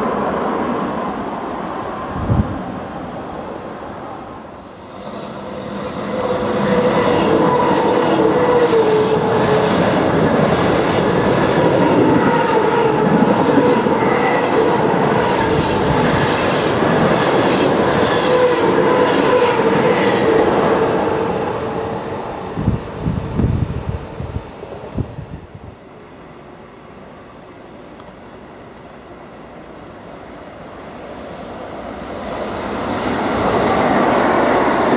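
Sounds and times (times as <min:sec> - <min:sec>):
wavering train whine: 0:00.0 - 0:34.9
train wheels rolling on rails: 0:04.7 - 0:24.9.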